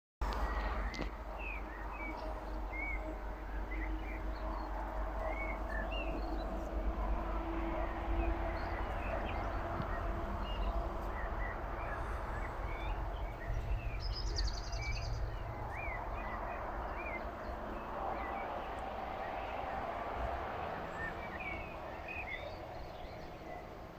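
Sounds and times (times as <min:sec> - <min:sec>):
steady low rumble: 0:00.2 - 0:23.9
bird chirps: 0:07.8 - 0:18.6, 0:20.9 - 0:23.8.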